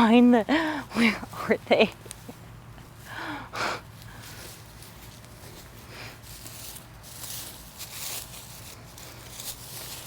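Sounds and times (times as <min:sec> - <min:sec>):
hands digging through soil: 0:04.0 - 0:10.0.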